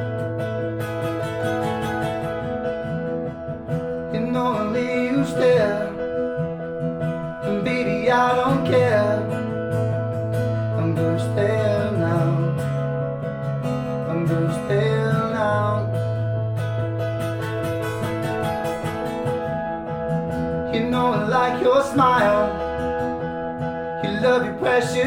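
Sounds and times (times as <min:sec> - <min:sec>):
acoustic guitar strumming: 0:00.0 - 0:25.0
wordless vocal melody: 0:04.1 - 0:06.5, 0:07.2 - 0:13.1, 0:20.5 - 0:25.0.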